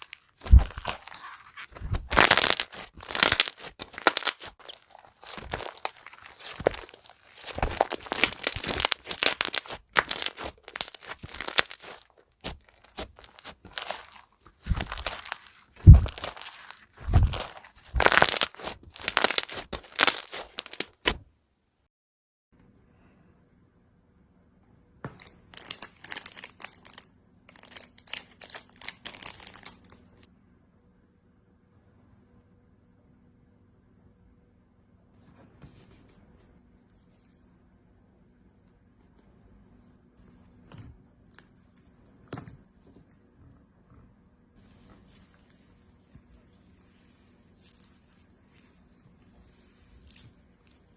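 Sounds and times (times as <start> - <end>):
slime squeezed crackling and popping: 0.0 - 21.2, 25.6 - 29.9.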